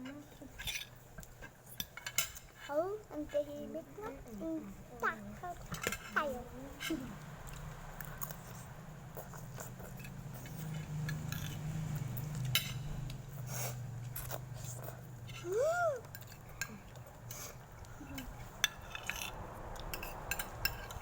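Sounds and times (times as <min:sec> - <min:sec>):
cutlery clinking on plates: 0:12.3 - 0:13.1, 0:18.2 - 0:21.0.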